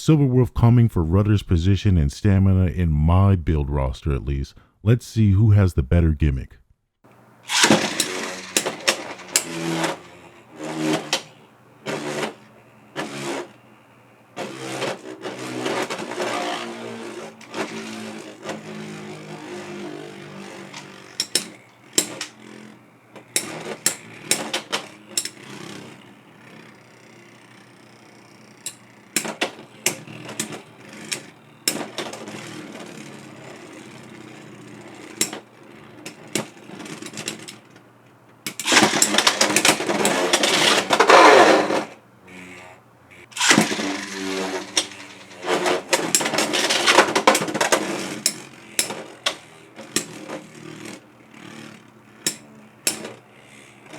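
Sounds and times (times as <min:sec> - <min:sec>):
spinning tops whirring: 0:07.1 - 0:37.8, 0:38.4 - 0:53.9
spinning tops clashing: 0:07.4 - 0:11.4, 0:43.4 - 0:47.5.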